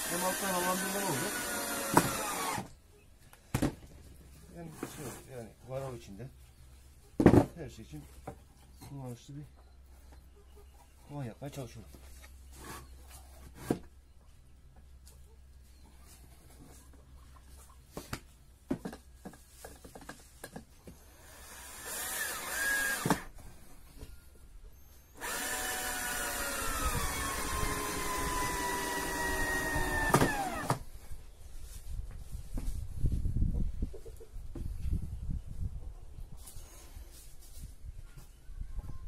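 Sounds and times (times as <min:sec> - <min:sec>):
power drill running: 0:00.0 - 0:02.7, 0:21.2 - 0:23.3, 0:25.2 - 0:30.8.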